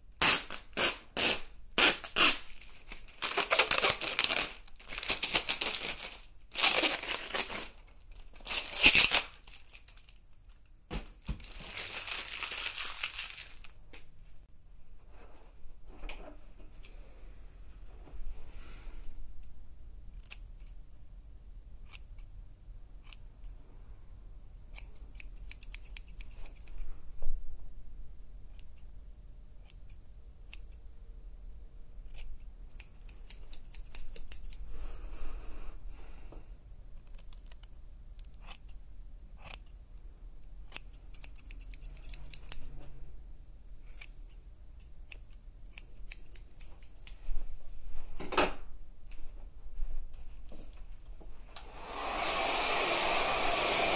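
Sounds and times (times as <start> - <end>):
sharp clicks and snips: 24.7 - 26.9, 32.0 - 34.6, 37.0 - 38.8, 39.4 - 42.7, 43.8 - 47.2.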